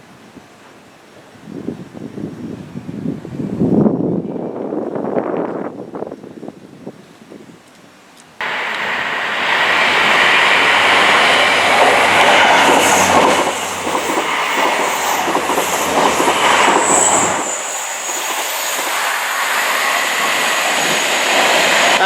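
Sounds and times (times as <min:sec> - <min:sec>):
high squeal: 0:08.4 - 0:21.9
train wheels clattering: 0:08.6 - 0:22.0.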